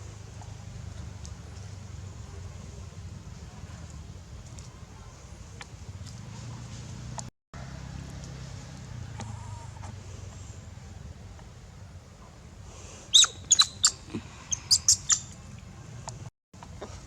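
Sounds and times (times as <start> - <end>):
low steady rumble: 0.0 - 13.1
baby monkey squeaking cries: 13.1 - 15.2.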